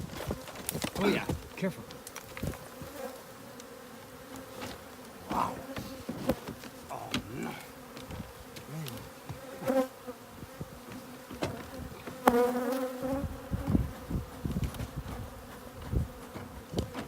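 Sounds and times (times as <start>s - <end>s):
bees buzzing: 0.0s - 17.0s
knocks and thumps: 10.6s - 12.4s.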